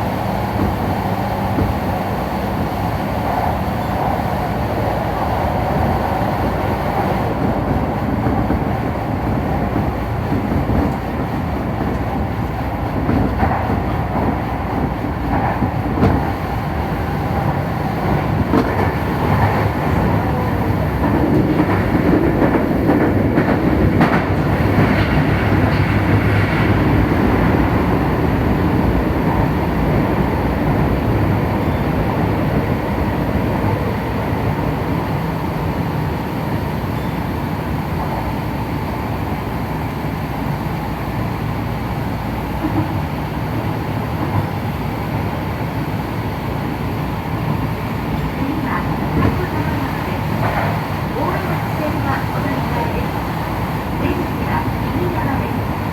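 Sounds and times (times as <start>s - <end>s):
train wheels rumbling on rail: 0.0s - 55.9s.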